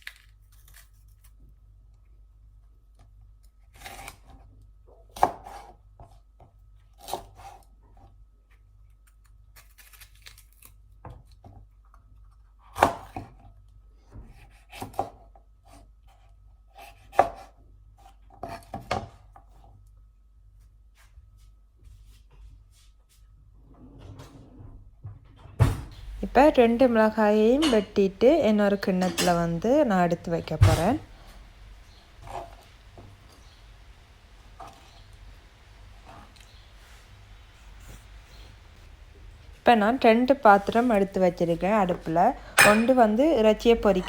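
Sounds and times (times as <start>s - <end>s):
knife chopping on cutting board: 5.1s - 5.7s, 14.2s - 15.2s, 16.8s - 17.6s, 32.2s - 32.6s.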